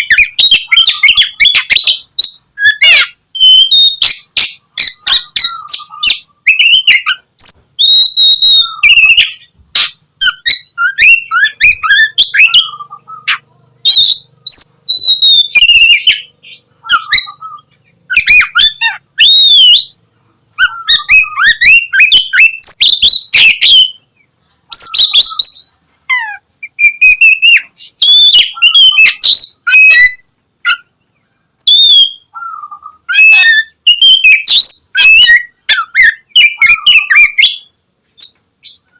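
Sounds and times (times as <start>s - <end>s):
magpie-robin singing: 0.0s - 38.9s.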